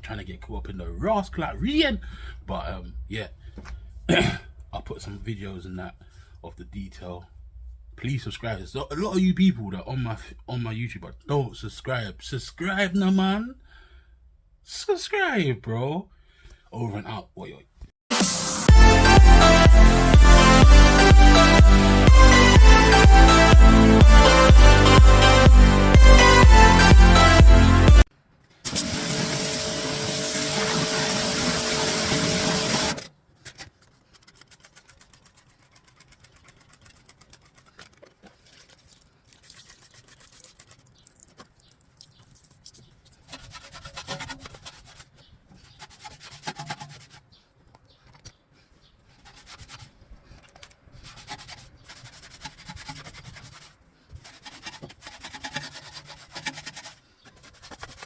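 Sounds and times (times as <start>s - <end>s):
music: 18.1s - 28.1s
scrubbing and rubbing of a surface: 28.8s - 58.0s.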